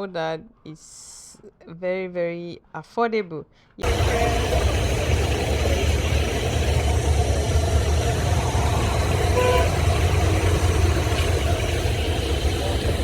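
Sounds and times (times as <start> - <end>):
street traffic rumble: 3.8 - 13.0
vehicle horn toot: 9.2 - 10.9.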